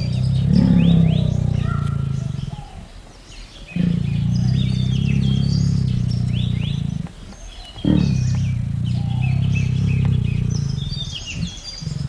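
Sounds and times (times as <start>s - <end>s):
small birds chirping: 0.0s - 12.0s
tiger growling: 0.0s - 12.0s.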